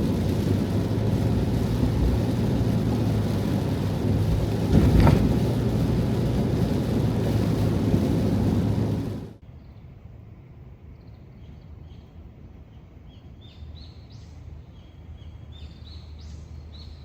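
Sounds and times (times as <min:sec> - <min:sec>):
heavy rain drumming on van roof: 0:00.0 - 0:09.4.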